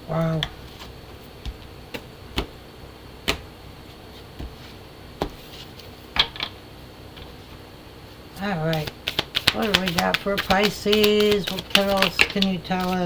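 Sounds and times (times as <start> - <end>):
cards tapping and clicking: 8.6 - 13.0.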